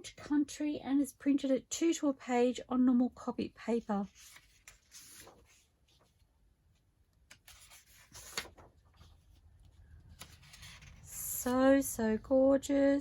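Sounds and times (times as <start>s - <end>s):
paper rustling: 3.8s - 11.6s.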